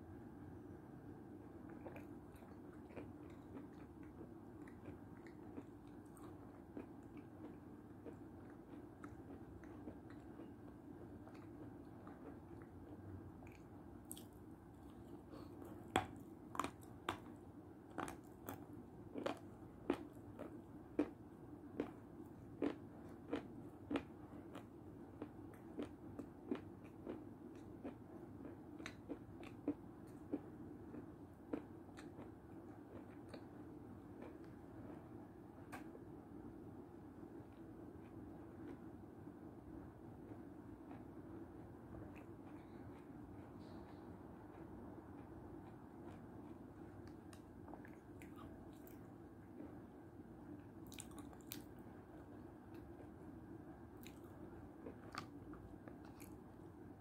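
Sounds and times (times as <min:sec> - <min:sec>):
chewing: 0:01.6 - 0:21.2, 0:21.8 - 0:35.1, 0:41.9 - 0:49.9, 0:50.8 - 0:53.2, 0:54.0 - 0:56.5.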